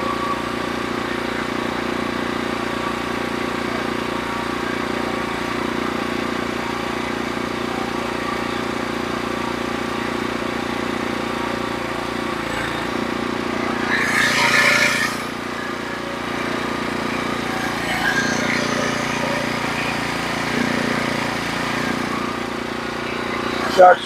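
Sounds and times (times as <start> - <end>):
sawmill engine running: 0.0 - 24.0
loud noisy burst: 12.2 - 24.0.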